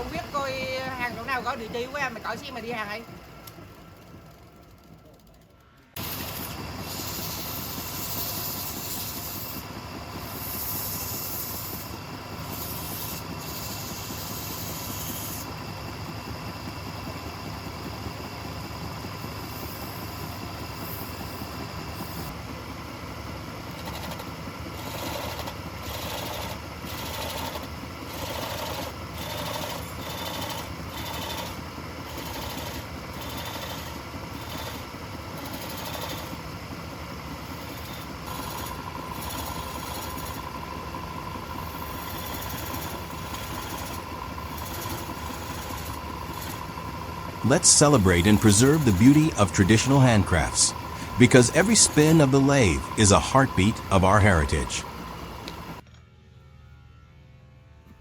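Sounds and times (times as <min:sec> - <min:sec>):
wood lathe humming: 0:00.0 - 0:04.9, 0:06.0 - 0:17.6, 0:23.6 - 0:47.5, 0:48.3 - 0:49.2, 0:50.7 - 0:52.4
regular pulsing: 0:47.2 - 0:55.8.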